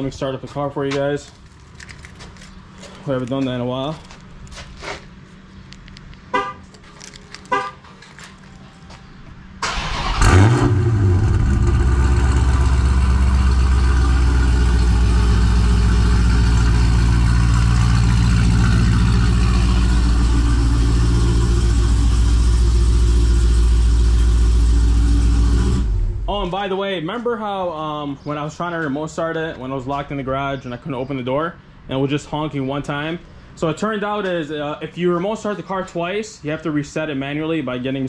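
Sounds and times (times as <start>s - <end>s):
car engine starting and idling: 5.4s - 8.7s, 9.4s - 26.5s
car horn chirps: 6.3s - 6.7s, 7.4s - 7.9s.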